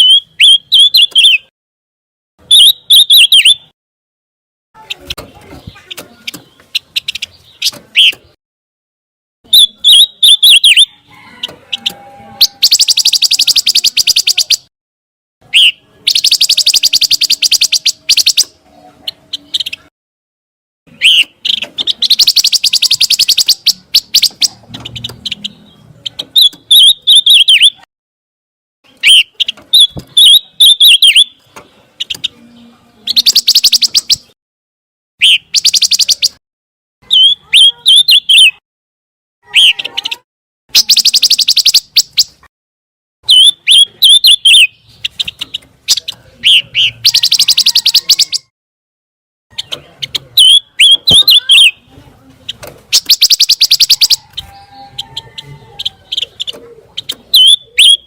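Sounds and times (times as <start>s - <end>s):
bird singing trills and whistles: 0.0s - 1.5s, 2.4s - 3.7s, 9.5s - 14.7s, 15.5s - 19.9s, 20.9s - 27.9s, 28.9s - 34.4s, 35.2s - 36.4s, 37.0s - 38.6s, 39.5s - 42.4s, 43.3s - 48.5s, 49.5s - 51.8s, 52.9s - 58.0s.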